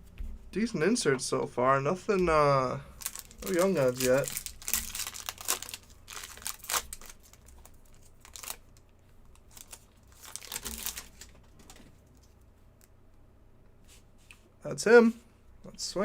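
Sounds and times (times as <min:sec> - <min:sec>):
foil wrapper crinkling: 0:03.0 - 0:12.3.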